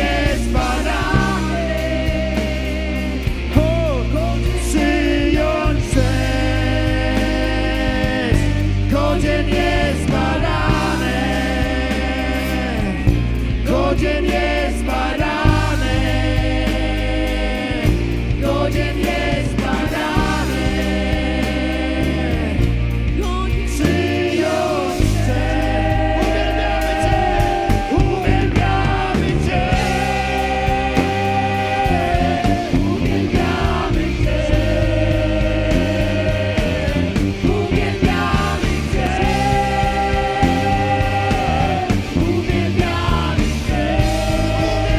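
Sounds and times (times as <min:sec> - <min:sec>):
bass line: 0:00.0 - 0:44.9
drums: 0:00.0 - 0:44.9
people singing: 0:00.0 - 0:44.9.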